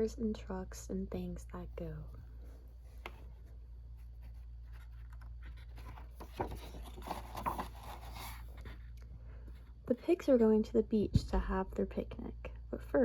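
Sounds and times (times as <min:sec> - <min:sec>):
low steady hum: 0:00.0 - 0:13.0
book pages rustling: 0:02.7 - 0:09.0.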